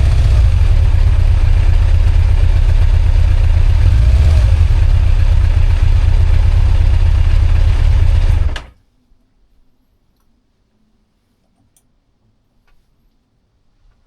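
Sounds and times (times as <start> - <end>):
motorcycle engine idling: 0.0 - 8.7.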